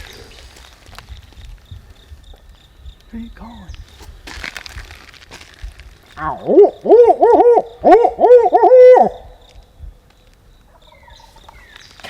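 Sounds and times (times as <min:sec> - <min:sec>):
owl call hooting: 0:06.2 - 0:09.4.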